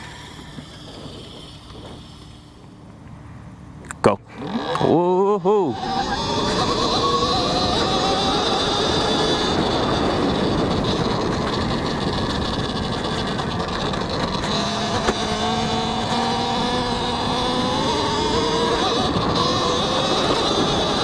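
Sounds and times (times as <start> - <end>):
electric motor whine: 0.0 - 21.0
wind buffeting on microphone: 5.7 - 21.0.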